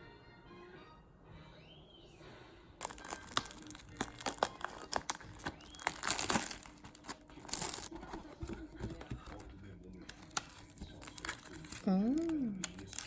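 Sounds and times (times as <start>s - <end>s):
material crinkling and rustling: 2.8s - 13.0s.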